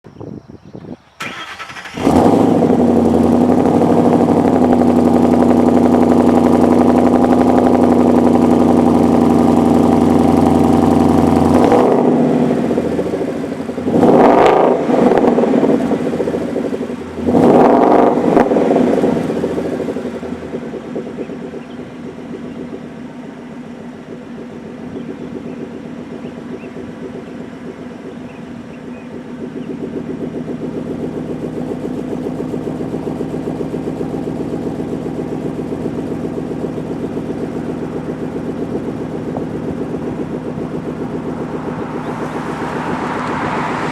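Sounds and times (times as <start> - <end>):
car engine starting and idling: 1.1 - 43.9
engine revving blips: 1.2 - 43.9.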